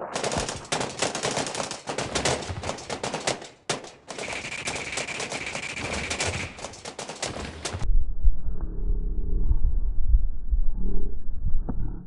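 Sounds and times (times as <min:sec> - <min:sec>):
automatic gunfire: 0:00.1 - 0:07.8.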